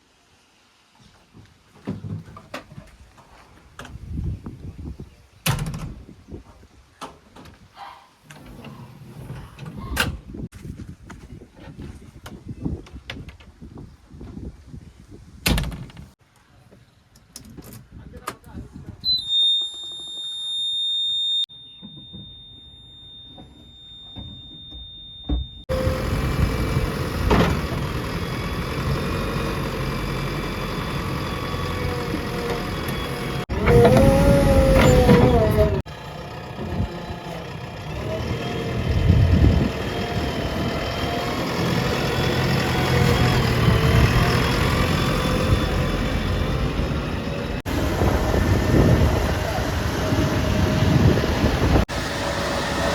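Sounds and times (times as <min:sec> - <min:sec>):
high electronic beep: 0:19.1 - 0:25.6
engine revving under load: 0:25.7 - 0:52.9
heavy diesel machine running: 0:25.7 - 0:52.9.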